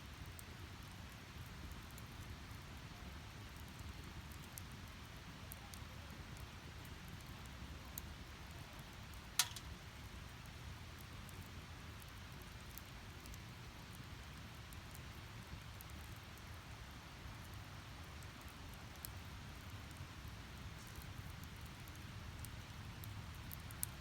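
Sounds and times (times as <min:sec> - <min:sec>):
faint fire crackles: 0:00.0 - 0:24.0
loud pop from burning logs: 0:09.4 - 0:09.7.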